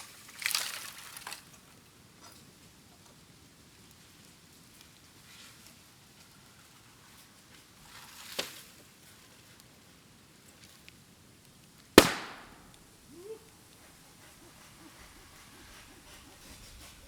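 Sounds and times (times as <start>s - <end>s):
bamboo bursting in a bonfire: 12.0s - 12.8s.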